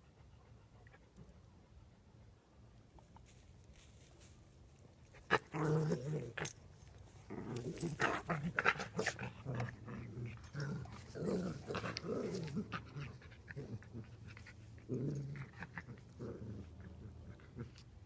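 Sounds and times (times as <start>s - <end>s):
dogs growling: 7.3s - 17.8s.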